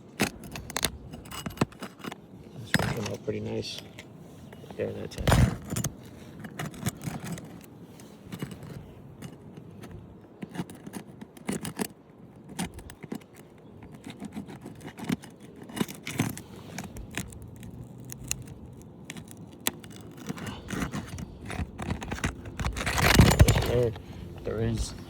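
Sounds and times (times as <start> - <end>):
shingles clicking and crackling: 0.0 - 25.0
metal bar scraping shingles: 12.5 - 25.0.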